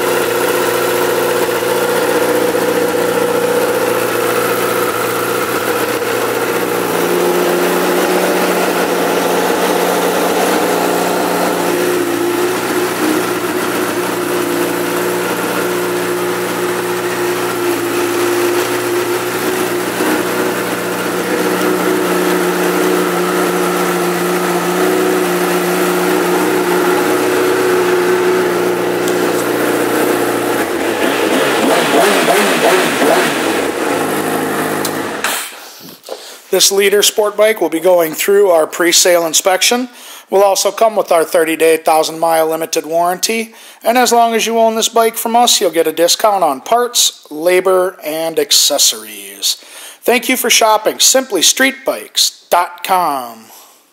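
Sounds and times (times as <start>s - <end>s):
motorcycle engine idling and revving: 0.0s - 35.4s.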